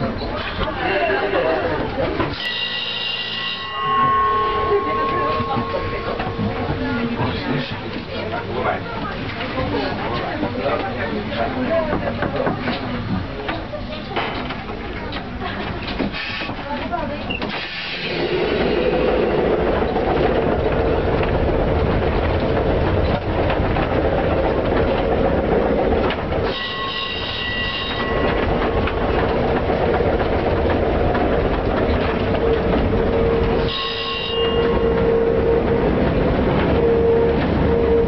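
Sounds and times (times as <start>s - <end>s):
tram rumble and clatter: 0.0s - 38.0s
tram motor whine: 2.2s - 8.3s, 17.8s - 38.0s
high ringing signal: 2.4s - 6.7s, 33.6s - 35.6s.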